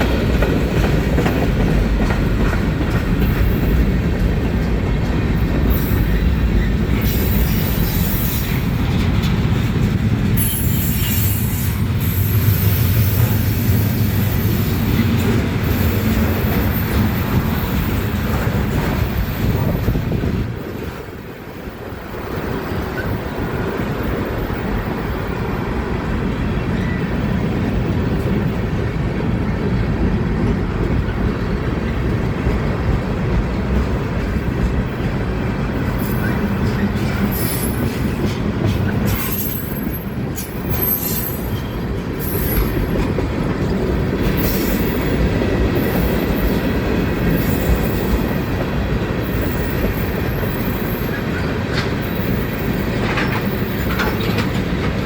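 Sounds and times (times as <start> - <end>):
freight train rumbling past: 0.0 - 55.0
wheels clacking over rail joints: 0.0 - 55.0
high wheel squeal: 10.4 - 14.9, 38.9 - 43.0.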